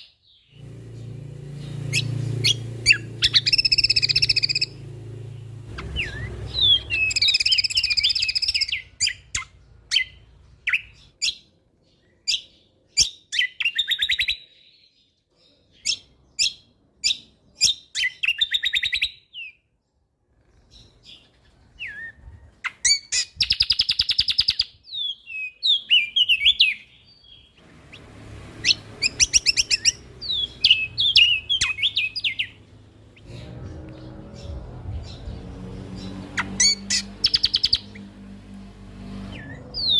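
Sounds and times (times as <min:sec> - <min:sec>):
songbird singing trills: 0:00.0 - 0:19.6, 0:20.4 - 0:39.9.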